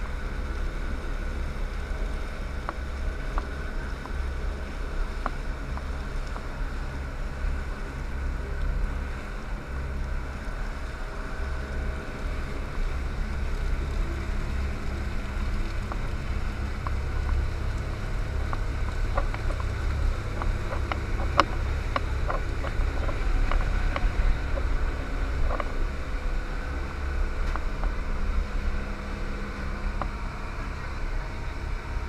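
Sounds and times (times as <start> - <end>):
boat engine rumble: 0.0 - 32.0
light clicks and knocks: 18.4 - 24.8, 25.4 - 25.8.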